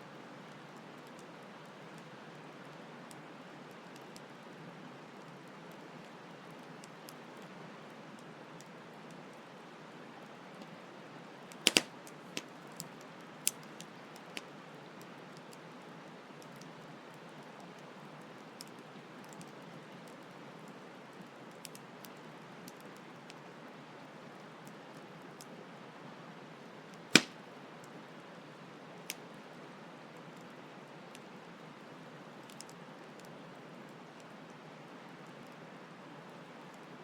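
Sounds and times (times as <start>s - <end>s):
campfire crackling and popping: 10.2s - 23.5s, 27.0s - 28.0s.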